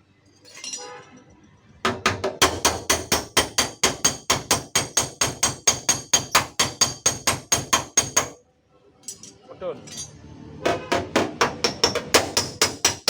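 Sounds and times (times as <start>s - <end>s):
hammer tapping metal panel: 1.9s - 8.4s, 10.7s - 13.0s.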